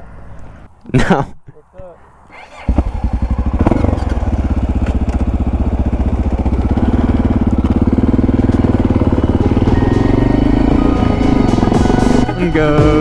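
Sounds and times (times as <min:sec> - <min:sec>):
motorcycle engine running: 0:02.6 - 0:13.0.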